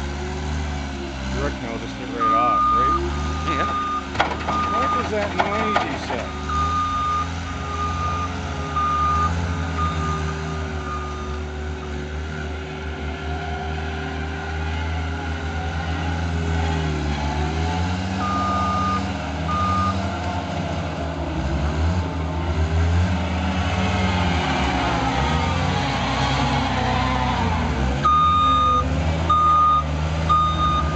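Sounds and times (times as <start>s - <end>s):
diesel engine working: 0.0s - 30.9s
backup alarm beeping: 2.2s - 11.4s, 28.0s - 30.9s.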